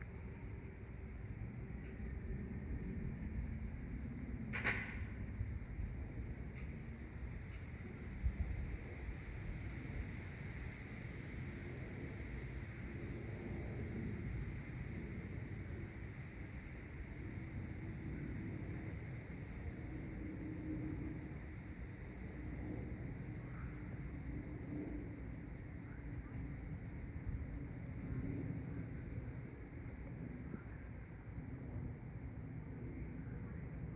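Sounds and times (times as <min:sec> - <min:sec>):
steady low rumble: 0:00.0 - 0:21.4
crickets chirping: 0:00.0 - 0:33.9.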